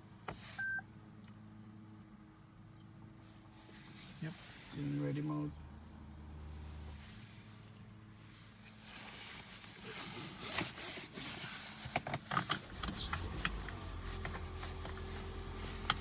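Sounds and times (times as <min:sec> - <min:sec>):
car engine starting and humming: 0:03.6 - 0:08.4, 0:09.8 - 0:16.0
clicks and rustling of handling: 0:09.1 - 0:16.0.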